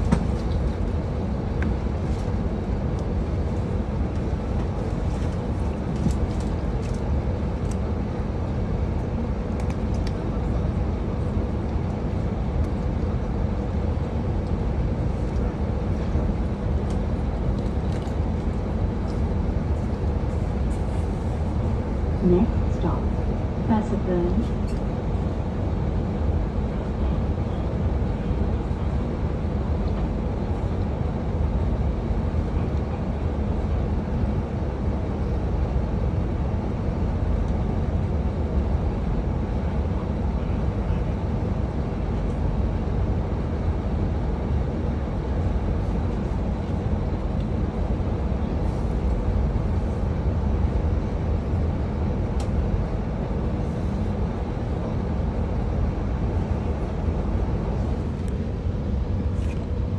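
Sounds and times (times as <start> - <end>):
train wheels rumbling on track: 0.0 - 1.0.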